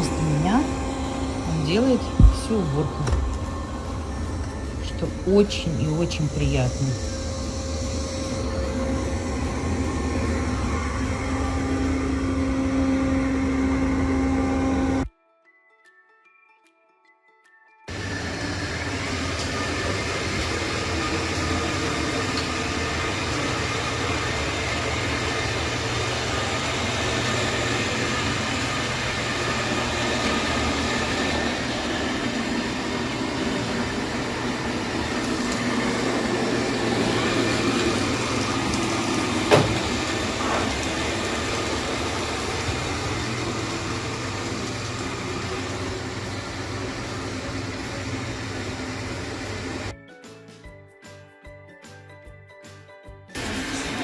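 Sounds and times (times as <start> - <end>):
robot vacuum whirring: 17.9 - 49.9.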